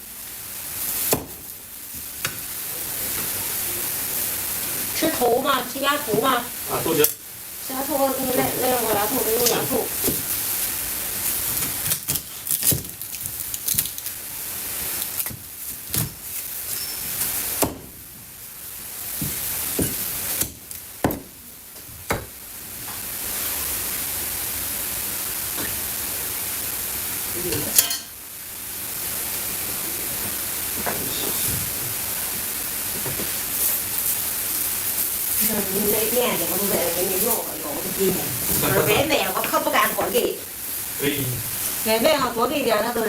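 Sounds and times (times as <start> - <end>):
steady hiss: 0.0 - 43.0
kitchen utensils clattering: 27.6 - 28.1, 30.9 - 31.6.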